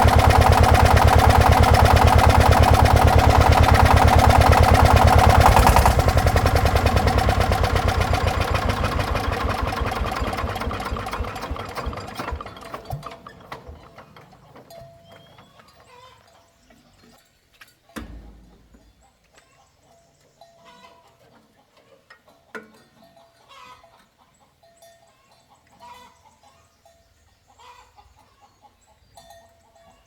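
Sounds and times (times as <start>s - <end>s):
engine running and shutting off: 0.0s - 14.5s.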